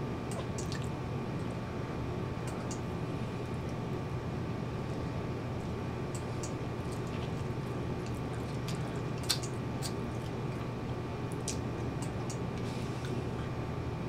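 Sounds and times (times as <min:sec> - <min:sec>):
steady low hum: 0:00.0 - 0:14.0
wet mouth chewing clicks: 0:06.1 - 0:10.7, 0:11.3 - 0:12.7.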